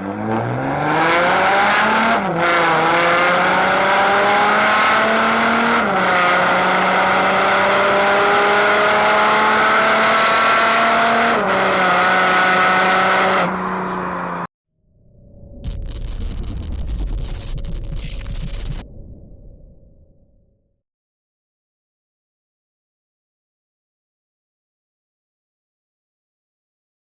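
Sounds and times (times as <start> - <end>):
diesel car engine accelerating: 0.0 - 14.5.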